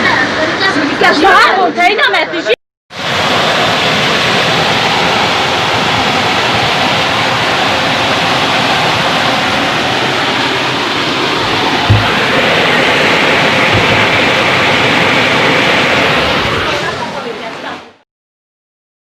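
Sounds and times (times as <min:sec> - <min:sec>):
floodwater rushing: 0:02.9 - 0:18.0.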